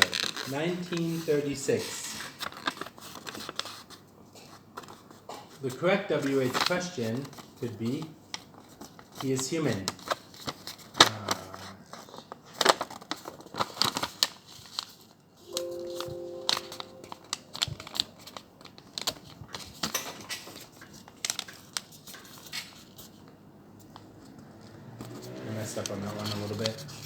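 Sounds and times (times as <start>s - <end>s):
short steady tone: 15.5s - 17.6s.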